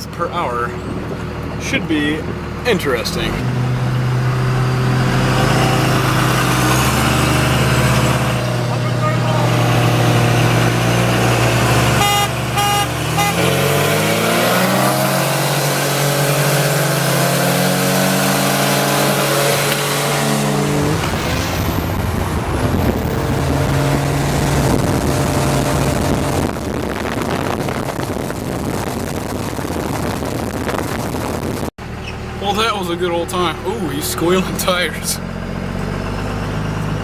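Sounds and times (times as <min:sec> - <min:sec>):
diesel pickup accelerating: 0:00.0 - 0:37.0
road and wind noise: 0:00.0 - 0:37.0
horn honks: 0:11.8 - 0:14.0.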